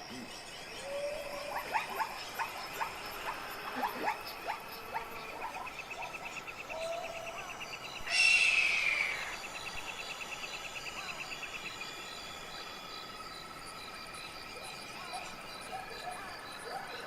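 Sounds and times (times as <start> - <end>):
insects trilling in pulses: 0.0 - 17.0
steady high-pitched chirring: 0.0 - 17.0
loud animal call: 8.0 - 9.4.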